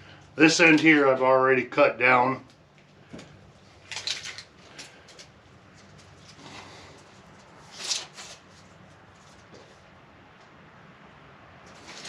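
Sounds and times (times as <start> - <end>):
scuffing rustling sounds: 8.2 - 9.9
faint low background noise: 8.5 - 12.0.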